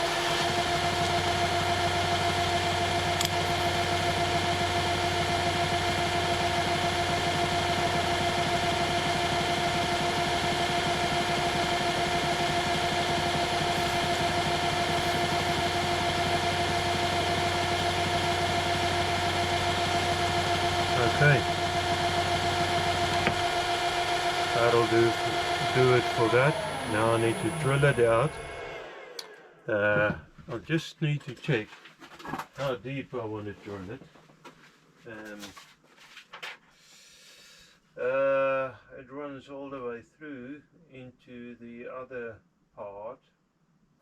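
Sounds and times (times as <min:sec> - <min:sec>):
lathe motor whine: 0:00.0 - 0:29.7.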